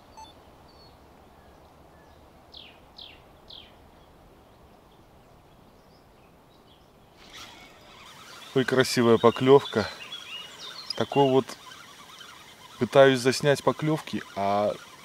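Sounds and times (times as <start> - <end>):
songbird calling: 5.6 - 15.0.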